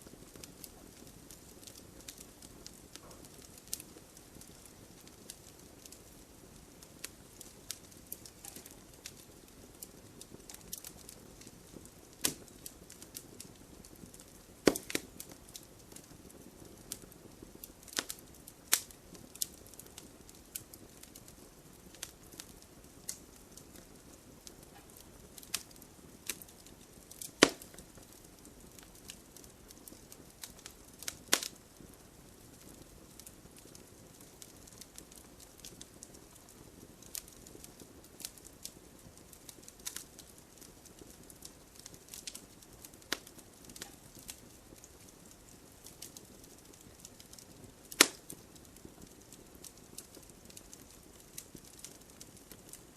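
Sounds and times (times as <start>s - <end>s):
faint low hiss: 0.0s - 52.9s
wood fire crackling and popping: 0.0s - 52.9s.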